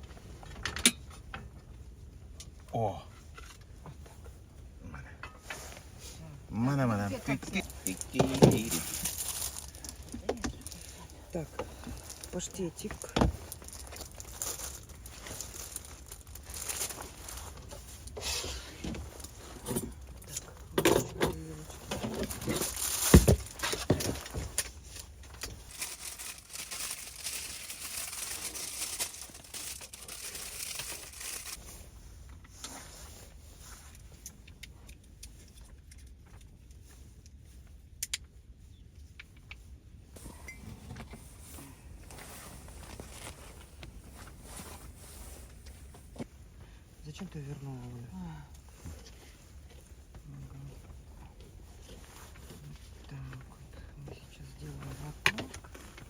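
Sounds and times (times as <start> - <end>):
food packaging rustling and knocks: 7.9 - 10.8, 20.8 - 24.7.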